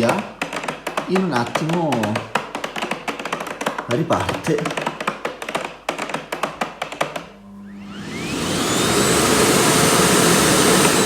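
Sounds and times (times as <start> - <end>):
vacuum cleaner motor whining: 7.4 - 11.0.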